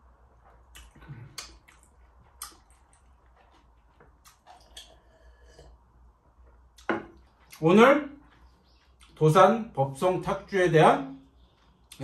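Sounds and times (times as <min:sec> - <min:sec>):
soft eating clicks and taps: 0:00.4 - 0:05.0.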